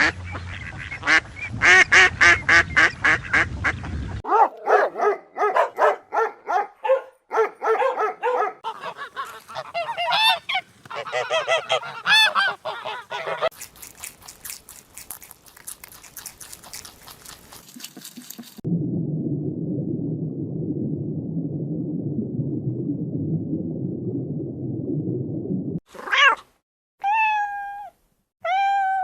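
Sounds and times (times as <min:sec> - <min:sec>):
geese honking: 0:08.6 - 0:13.5.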